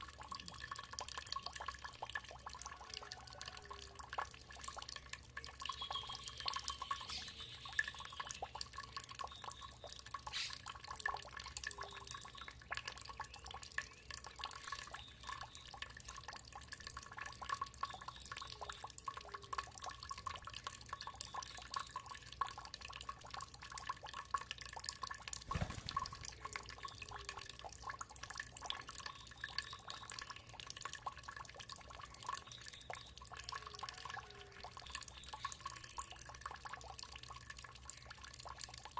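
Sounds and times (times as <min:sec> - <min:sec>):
water dripping and trickling: 0:00.0 - 0:38.9
faint bird call: 0:10.3 - 0:10.6.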